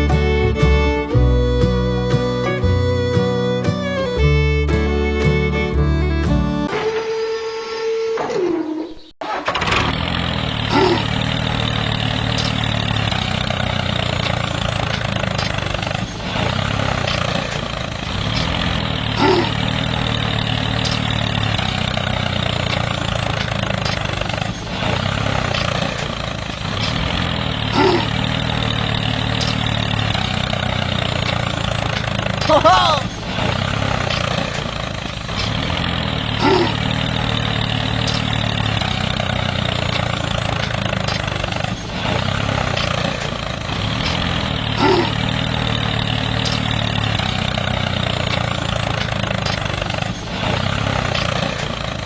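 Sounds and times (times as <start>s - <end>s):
music: 0.0s - 6.7s
small engine running: 33.4s - 52.0s.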